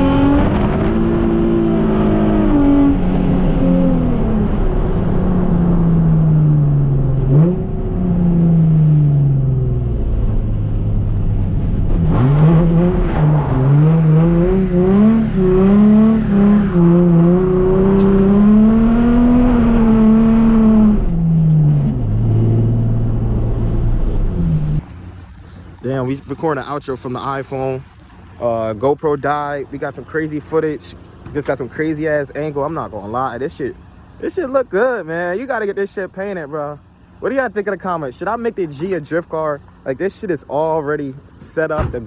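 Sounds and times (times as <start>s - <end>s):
car engine revving hard: 0.0s - 24.8s.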